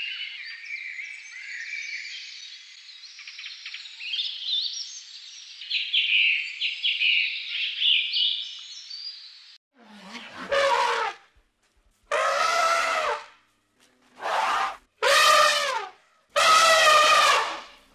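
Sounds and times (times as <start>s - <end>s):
songbirds chirping: 0.0s - 9.6s.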